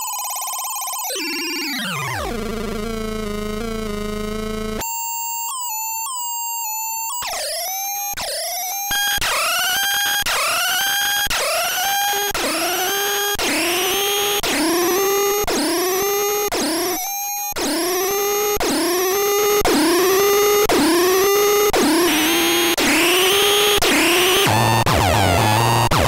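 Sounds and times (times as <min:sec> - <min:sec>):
swooping electronic tone: 0:06.7 - 0:25.9.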